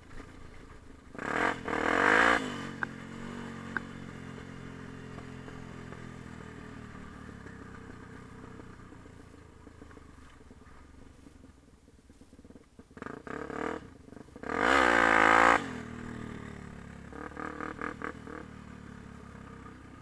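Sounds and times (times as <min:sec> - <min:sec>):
dirt bike engine revving: 0:01.1 - 0:10.2, 0:13.0 - 0:19.8.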